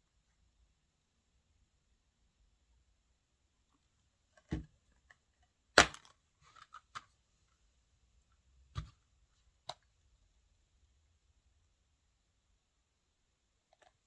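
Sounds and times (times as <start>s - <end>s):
plastic case clicks and snaps: 5.8s - 7.1s.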